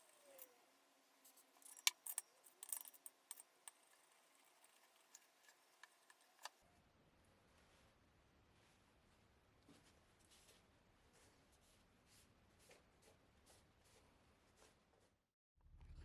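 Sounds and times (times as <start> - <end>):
metallic clicks of tools handled: 1.3 - 4.0.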